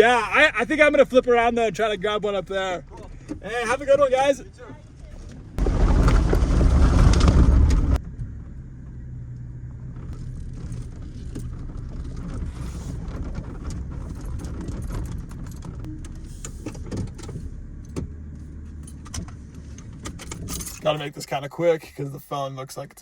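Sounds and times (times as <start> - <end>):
truck engine running: 0.0 - 21.0
light clicks and rattles: 9.3 - 20.9.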